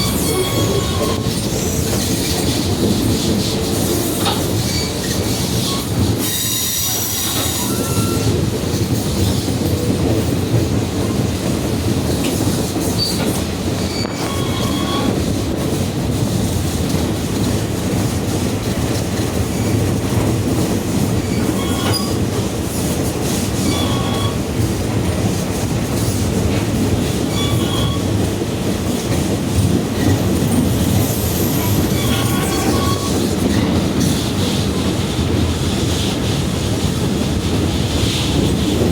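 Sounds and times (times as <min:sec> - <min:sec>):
steel wheels squealing: 0:00.0 - 0:02.6, 0:03.4 - 0:08.4, 0:12.8 - 0:15.3, 0:21.2 - 0:22.2, 0:23.6 - 0:24.5, 0:27.2 - 0:28.2, 0:30.0 - 0:34.2
train wheels rumbling on rail: 0:00.0 - 0:38.9.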